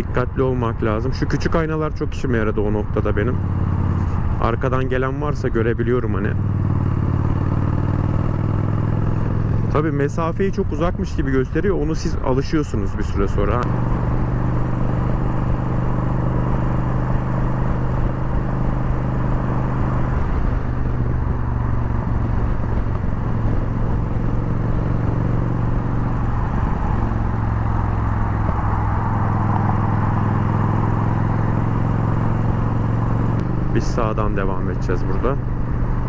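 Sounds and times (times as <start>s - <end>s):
motorcycle engine running: 2.8s - 11.0s, 13.4s - 36.0s
wind noise: 10.6s - 32.8s.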